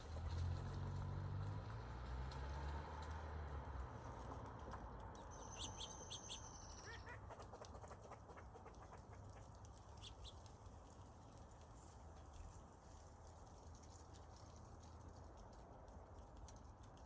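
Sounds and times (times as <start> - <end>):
faint high bird chirps: 5.2 - 7.2.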